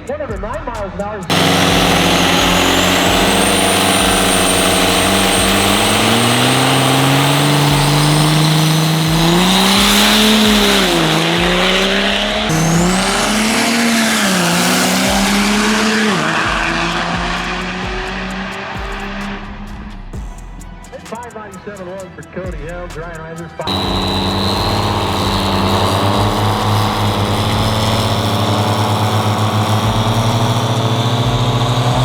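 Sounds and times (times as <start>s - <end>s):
diesel truck engine at full throttle: 0.6s - 20.1s, 23.7s - 32.0s
high whistle: 1.5s - 17.6s, 23.7s - 28.1s.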